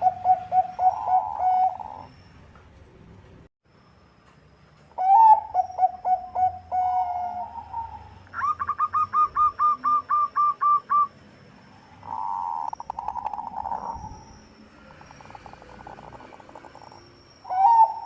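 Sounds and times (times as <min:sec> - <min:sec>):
dove cooing: 0:00.0 - 0:02.1, 0:05.0 - 0:11.1, 0:17.5 - 0:18.0.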